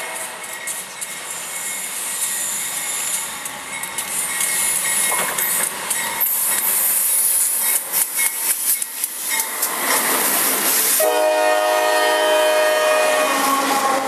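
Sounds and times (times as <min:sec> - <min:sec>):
steel wheels clicking over rails: 0:00.0 - 0:11.0
diesel locomotive engine rumble: 0:00.0 - 0:14.0
locomotive air horn chord: 0:11.0 - 0:14.0.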